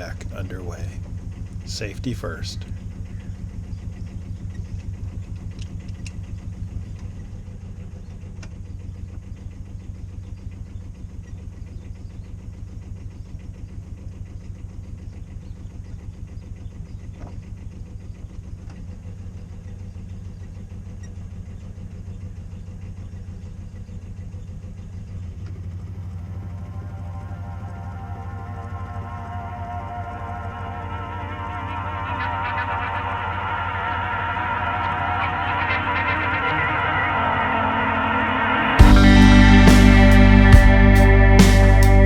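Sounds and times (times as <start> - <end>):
boat engine pulsing: 0.0 - 3.2, 25.5 - 42.0
music: 38.1 - 42.0.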